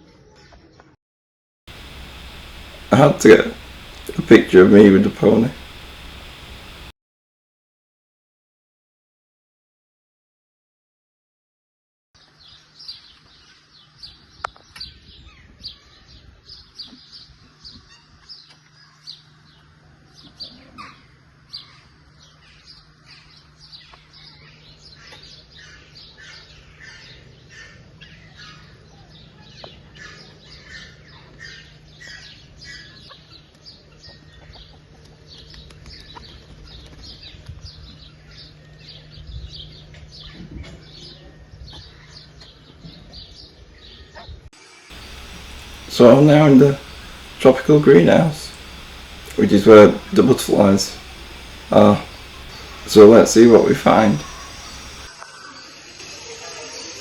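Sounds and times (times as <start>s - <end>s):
small birds chirping: 1.7s - 6.9s, 44.9s - 55.1s
steady low hum: 1.7s - 6.9s, 44.9s - 55.1s.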